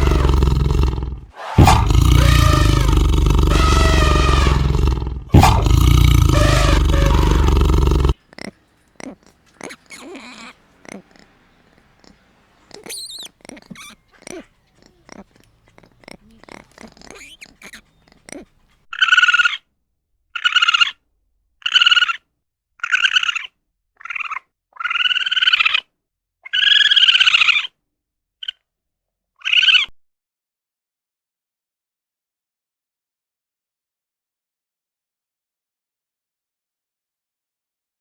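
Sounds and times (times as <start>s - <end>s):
loud arching animal calls: 0.0s - 19.6s, 20.4s - 21.0s, 21.6s - 22.2s, 22.8s - 25.9s, 26.5s - 27.7s, 29.4s - 29.9s.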